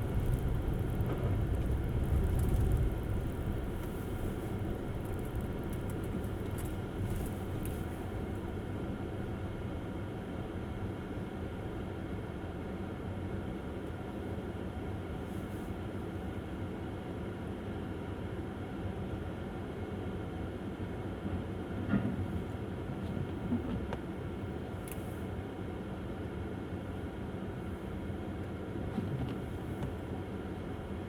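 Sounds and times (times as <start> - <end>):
tyre noise on snowy road: 0.0 - 9.4.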